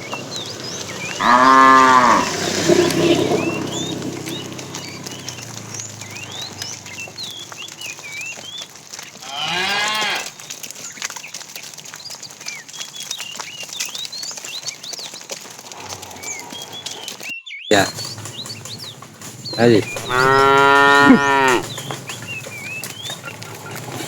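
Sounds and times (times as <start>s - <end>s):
small birds chirping: 0.0s - 24.0s
cow mooing: 1.1s - 7.2s, 9.2s - 10.3s, 19.5s - 22.0s.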